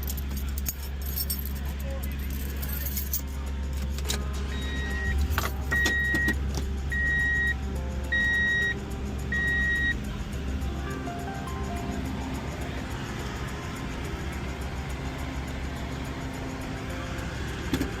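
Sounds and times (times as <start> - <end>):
vehicle engine running: 0.0 - 18.0
electronic warning beeps: 4.5 - 10.0.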